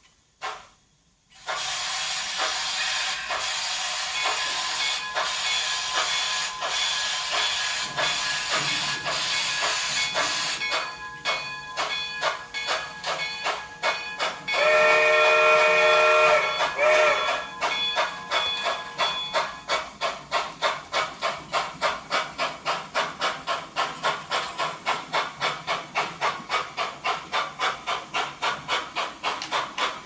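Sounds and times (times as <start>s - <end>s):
locomotive exhaust chuffs: 1.4s - 30.0s
steam hiss: 1.4s - 30.0s
steam whistle blowing: 14.5s - 17.6s.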